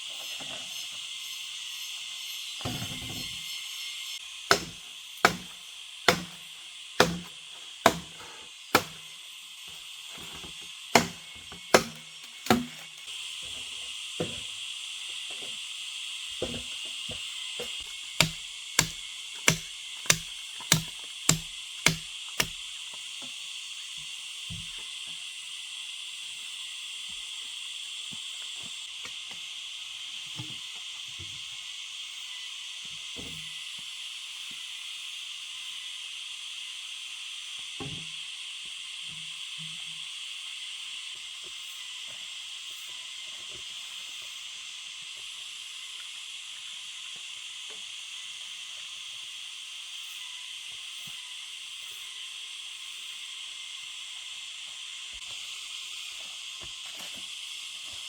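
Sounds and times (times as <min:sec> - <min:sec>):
sharp knocks: 0:04.5 - 0:05.5, 0:06.1 - 0:06.4, 0:07.0 - 0:07.3, 0:07.9 - 0:08.2, 0:08.8 - 0:09.0, 0:10.2 - 0:12.9, 0:17.6 - 0:22.5.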